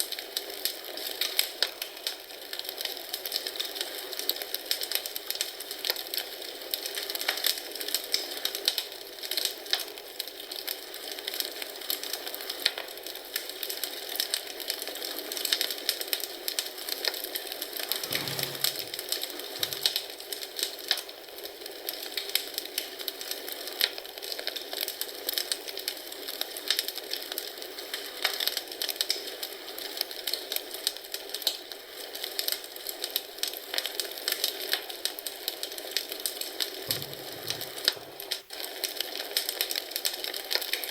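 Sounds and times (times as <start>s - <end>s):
wood fire crackling: 0.0s - 40.9s
low thumps: 36.9s - 37.9s.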